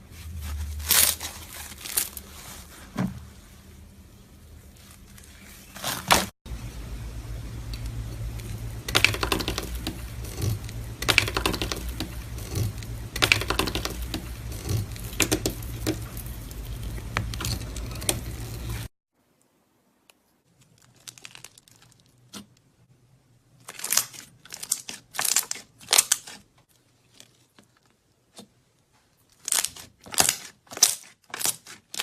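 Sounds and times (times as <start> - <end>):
steady low hum: 6.5 - 18.9.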